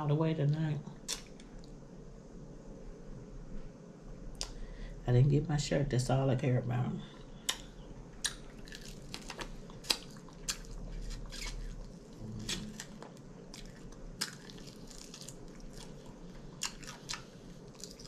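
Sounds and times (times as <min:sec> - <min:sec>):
sharp crunches and clicks: 0:07.5 - 0:15.9
biting and chewing: 0:07.5 - 0:18.0.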